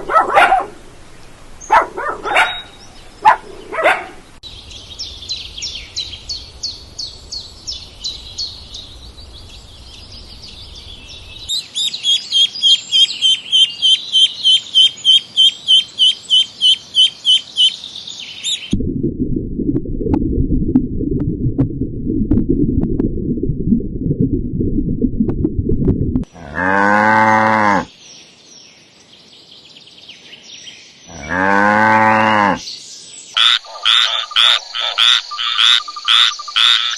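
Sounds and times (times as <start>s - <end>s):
small bird chirping: 4.5s - 18.7s, 33.3s - 36.9s
low rumbling noise: 18.8s - 26.3s.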